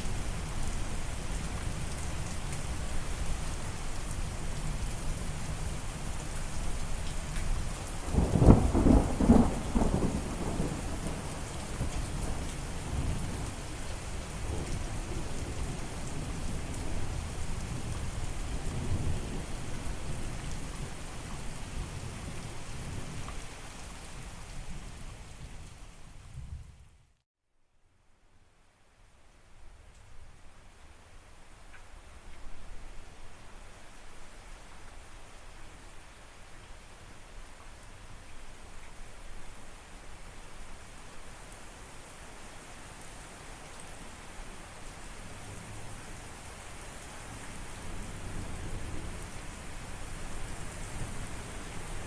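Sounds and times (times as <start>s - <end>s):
steady rain: 0.0s - 27.2s, 28.2s - 52.0s
thunder rumbling: 8.1s - 11.2s.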